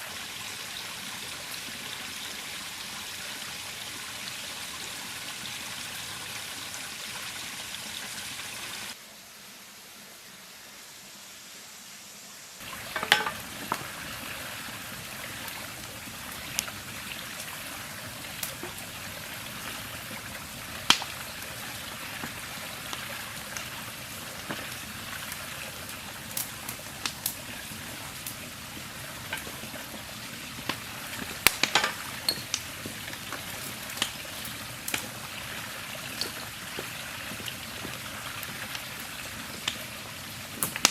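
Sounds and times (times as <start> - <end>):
campfire crackling and popping: 12.6 - 40.9.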